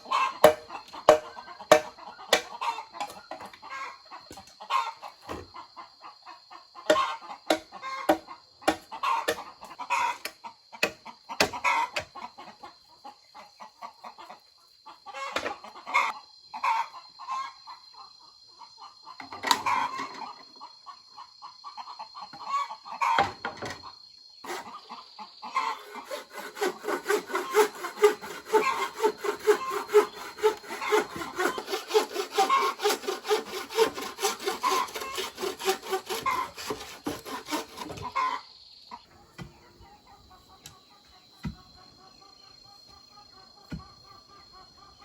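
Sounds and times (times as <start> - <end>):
hand saw cutting bamboo: 0.0 - 2.6, 6.9 - 9.4, 10.8 - 12.1, 24.4 - 24.8, 25.7 - 38.1
chickens clucking: 0.0 - 45.0.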